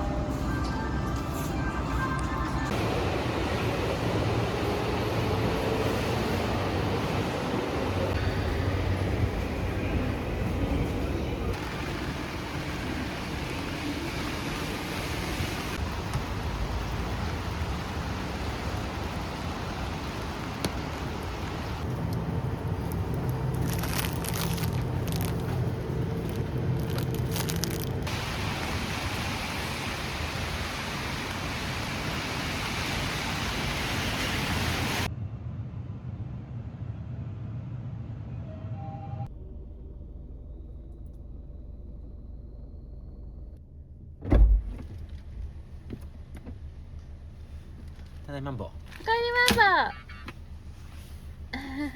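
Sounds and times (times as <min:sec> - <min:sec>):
heavy low rumble: 0:00.0 - 0:30.2, 0:35.0 - 0:38.5, 0:39.2 - 0:49.0
rain: 0:02.2 - 0:35.1, 0:44.6 - 0:51.9.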